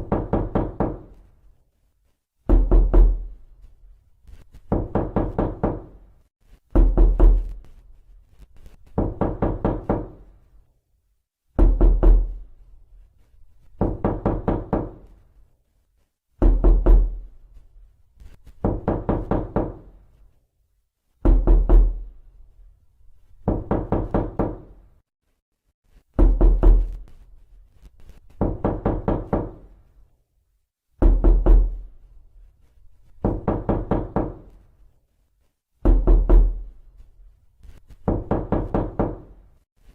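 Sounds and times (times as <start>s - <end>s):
knocking on a door: 0.0s - 1.2s, 2.5s - 3.3s, 4.7s - 6.0s, 6.7s - 7.6s, 8.9s - 10.3s, 11.6s - 12.4s, 13.8s - 15.1s, 16.4s - 17.2s, 18.6s - 19.9s, 21.2s - 22.1s, 23.4s - 24.8s, 26.2s - 27.0s, 28.4s - 29.7s, 31.0s - 31.8s, 33.2s - 34.6s, 35.8s - 36.7s, 38.0s - 39.4s.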